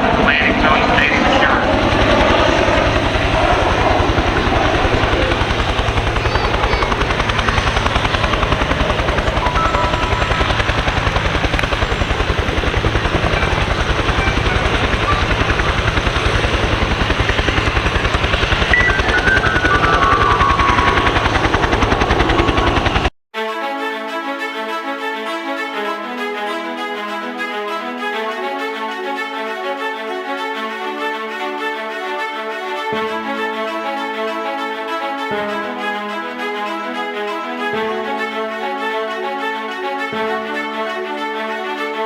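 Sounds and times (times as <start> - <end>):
aircraft engine drone: 0.0 - 23.1.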